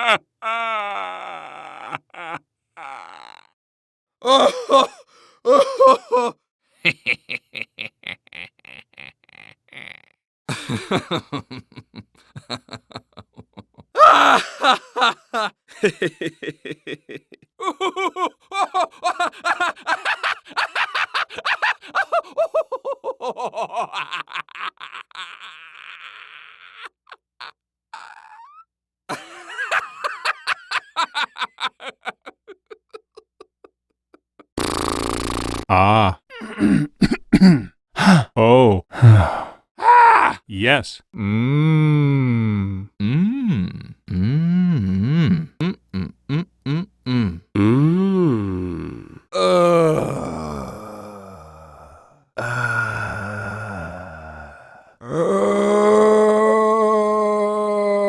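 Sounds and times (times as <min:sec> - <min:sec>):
person laughing: 0:01.6 - 0:03.4, 0:04.3 - 0:39.5, 0:44.8 - 0:47.8
person grunting: 0:35.5 - 0:58.0.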